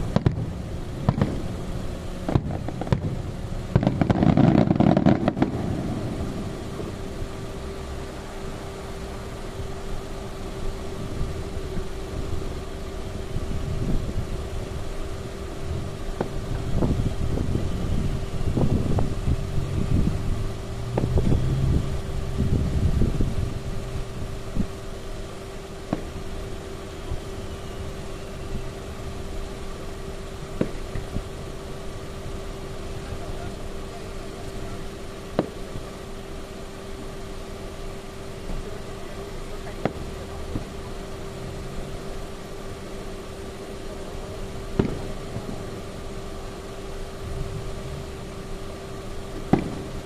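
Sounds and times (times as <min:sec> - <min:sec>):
fireworks booms and bangs: 0:00.0 - 0:07.4, 0:33.2 - 0:35.7, 0:39.6 - 0:40.8, 0:44.7 - 0:45.7, 0:49.4 - 0:50.0
steady hum: 0:00.0 - 0:50.0.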